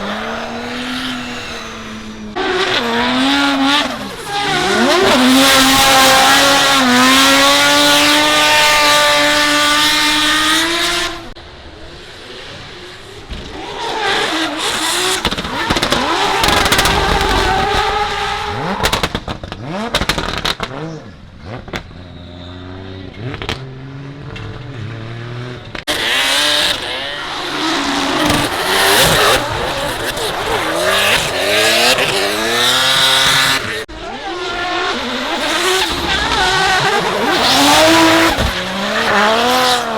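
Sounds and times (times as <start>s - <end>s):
drift cars revving past: 0.0s - 21.9s, 22.6s - 39.9s.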